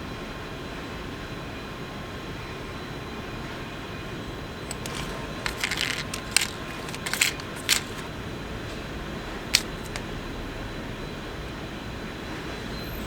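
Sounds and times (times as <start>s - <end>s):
clicks and crinkling handling noises: 4.6s - 8.2s, 9.4s - 10.1s.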